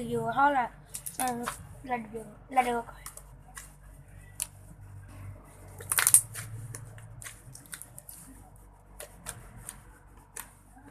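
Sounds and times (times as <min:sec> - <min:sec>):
slime crackling and popping: 0:05.8 - 0:06.6, 0:07.2 - 0:08.2.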